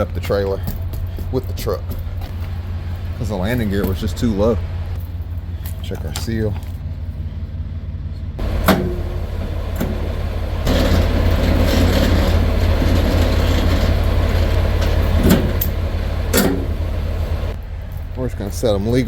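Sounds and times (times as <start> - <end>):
truck diesel engine idling: 0.0 - 19.0
steady rushing noise: 8.4 - 19.0.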